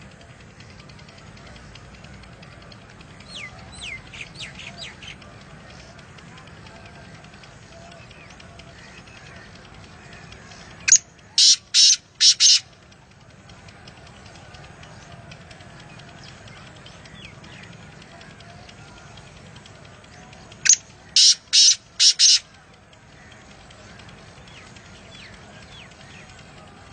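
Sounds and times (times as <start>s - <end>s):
faint chirps and ticking: 0.0s - 26.9s
bird calling harshly: 10.9s - 12.7s, 20.7s - 22.4s.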